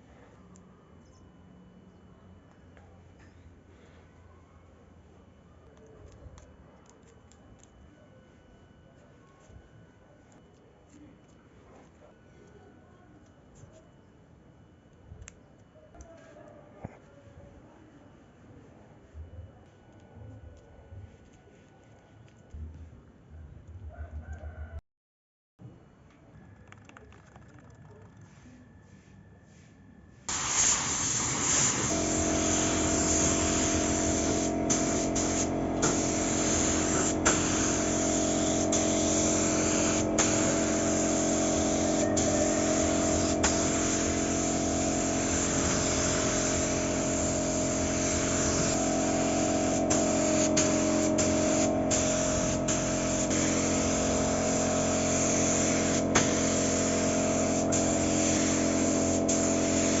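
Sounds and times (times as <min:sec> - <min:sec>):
spray gun air hissing: 0:30.3 - 1:00.0
motor humming: 0:31.7 - 1:00.0.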